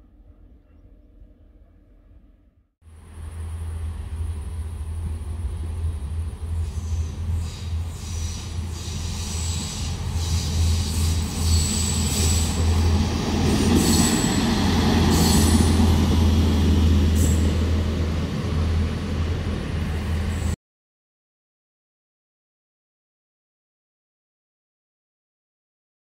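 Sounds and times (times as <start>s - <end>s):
passenger train rumbling past: 2.9s - 20.6s
train wheels clicking on track: 4.8s - 17.9s.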